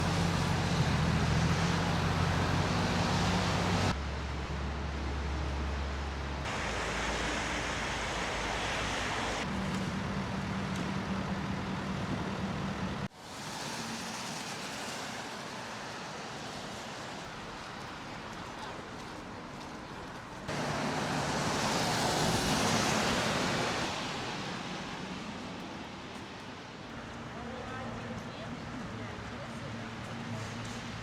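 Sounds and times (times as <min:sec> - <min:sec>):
vehicle engine humming: 0:00.0 - 0:13.1, 0:20.5 - 0:24.7
traffic and street noise: 0:00.0 - 0:31.0.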